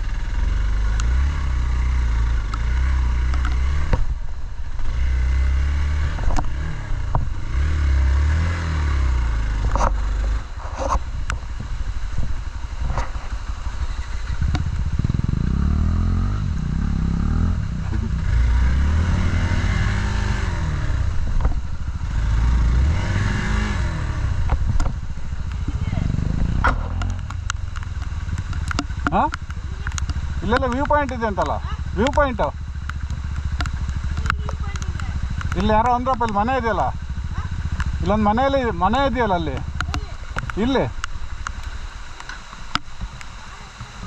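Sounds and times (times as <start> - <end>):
motorcycle engine revving: 0.0 - 44.0
sharp knocks and clatter: 26.4 - 36.4.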